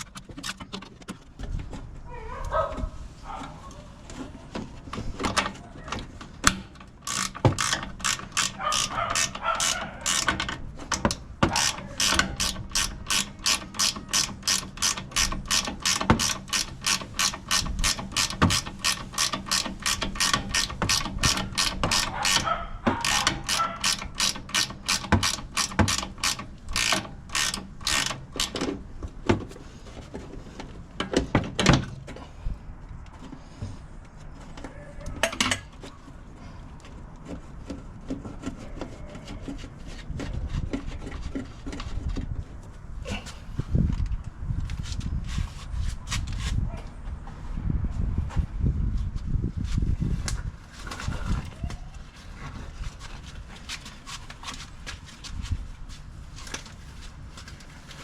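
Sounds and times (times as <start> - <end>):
ratchet wrench clicking: 6.4 - 28.7.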